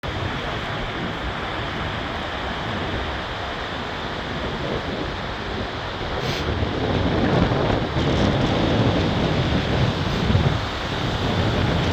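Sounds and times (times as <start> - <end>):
storm surf: 0.0 - 11.9
strong wind buffeting microphone: 0.0 - 11.9.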